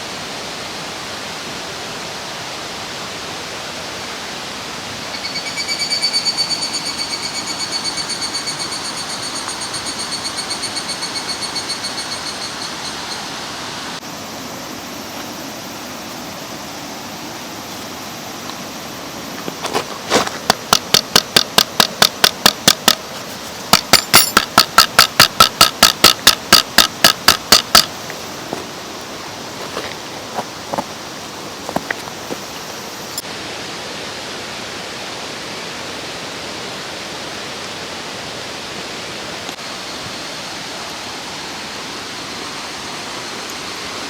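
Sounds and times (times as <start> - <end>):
mountain stream rushing: 0.0 - 44.0
rapid sharp taps: 20.4 - 23.0, 23.7 - 27.9.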